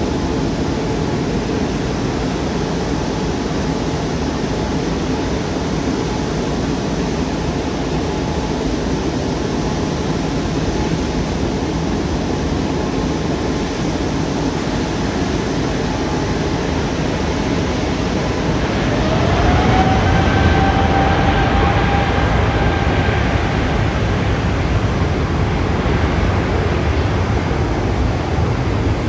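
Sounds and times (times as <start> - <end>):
jet engines rushing: 0.0 - 29.0.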